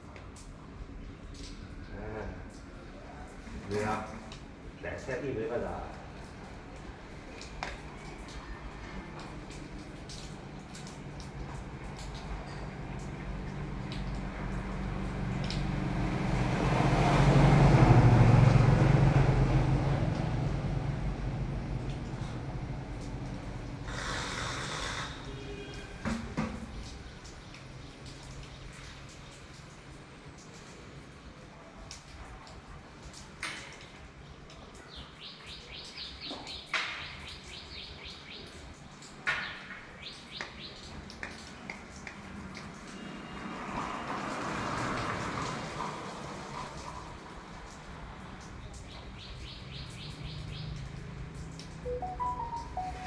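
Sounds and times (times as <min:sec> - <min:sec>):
vehicle passing by: 0:13.6 - 0:25.1, 0:43.4 - 0:46.6
bird chirping: 0:51.9 - 0:53.0.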